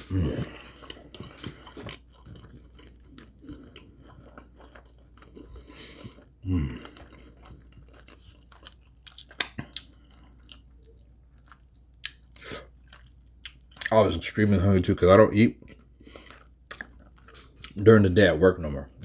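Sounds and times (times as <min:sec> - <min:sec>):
low vocal sound: 0:00.0 - 0:00.7
close chewing with wet mouth noises: 0:00.0 - 0:14.4, 0:15.0 - 0:18.0.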